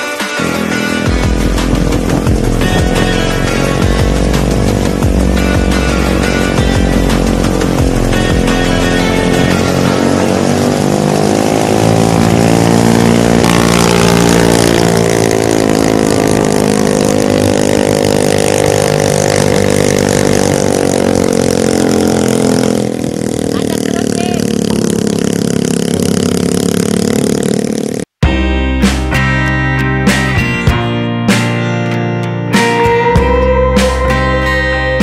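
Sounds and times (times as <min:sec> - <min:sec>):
small motorcycle engine running: 0:00.3 - 0:28.2.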